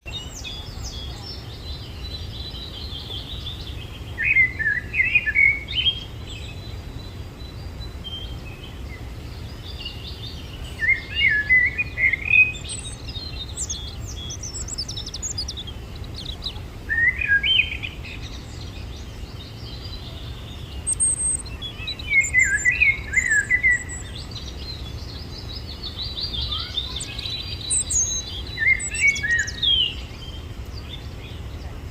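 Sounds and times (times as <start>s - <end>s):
bird singing chirps: 0.0s - 31.9s
steady low hum: 0.1s - 31.9s
faint high chirps: 7.9s - 31.9s.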